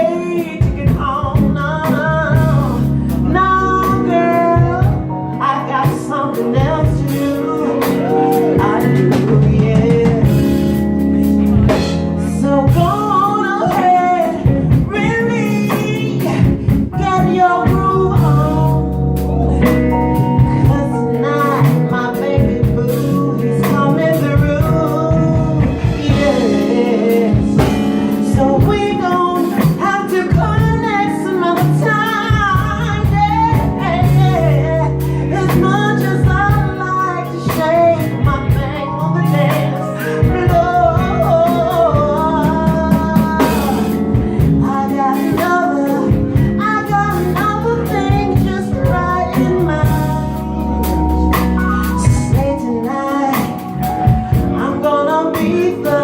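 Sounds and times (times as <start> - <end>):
bass guitar: 0.0 - 56.0
drum kit: 0.0 - 56.0
electric guitar: 0.0 - 56.0
woman singing: 0.0 - 56.0.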